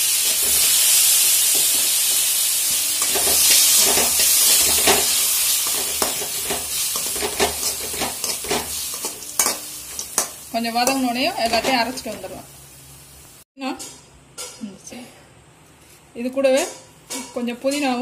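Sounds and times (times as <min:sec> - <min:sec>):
vegetables sizzling in oil: 0:00.0 - 0:13.4
metal spoon scraping pan: 0:03.0 - 0:12.3.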